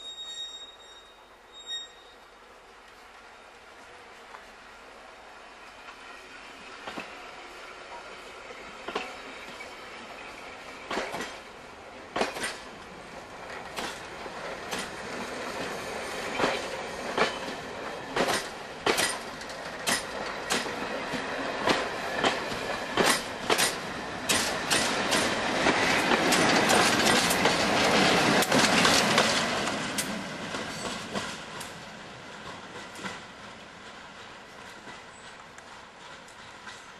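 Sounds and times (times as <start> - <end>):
railway coaches rolling past: 0.0 - 36.9
diesel locomotive passing: 0.8 - 36.9
wheels clicking over rail joints: 10.9 - 31.8, 32.4 - 36.9.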